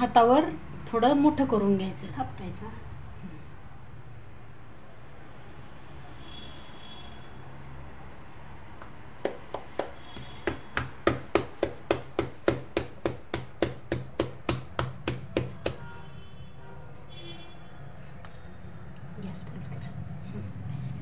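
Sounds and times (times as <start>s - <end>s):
hands patting dough: 8.8s - 16.0s.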